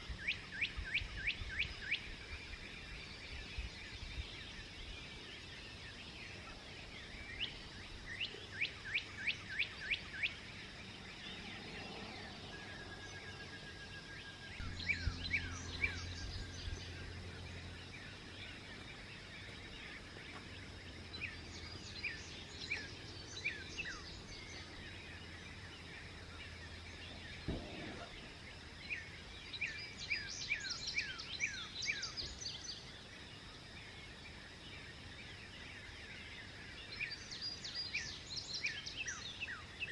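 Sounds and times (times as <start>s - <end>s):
songbird chirping: 0.0s - 39.9s
low hum: 11.0s - 22.1s
soft thump: 27.4s - 28.2s.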